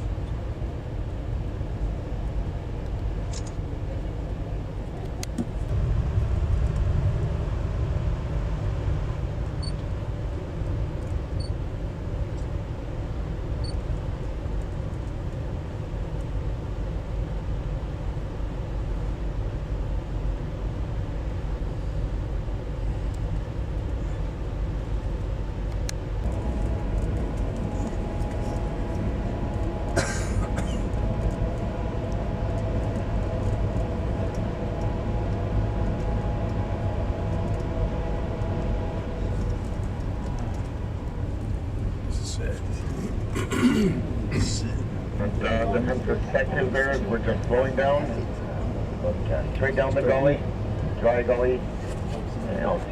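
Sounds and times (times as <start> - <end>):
train wheels rumbling on rails: 0.0 - 52.9
steady high-pitched tones: 26.2 - 41.4.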